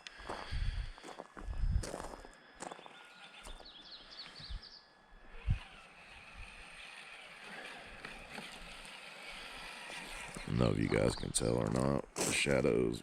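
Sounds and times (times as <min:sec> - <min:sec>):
small bird chirping: 0:02.6 - 0:06.1.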